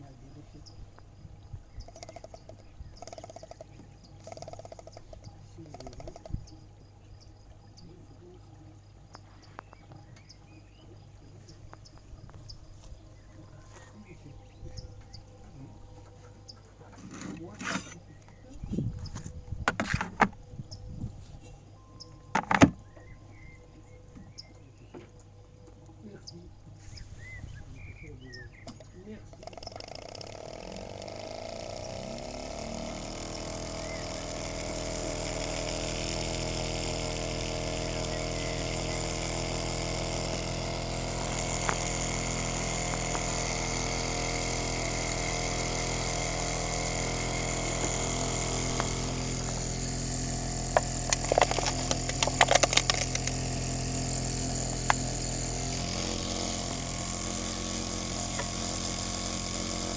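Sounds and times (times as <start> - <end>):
small engine mechanical hum: 0.0 - 59.9
sharp clicks: 1.8 - 6.6, 41.2 - 53.8.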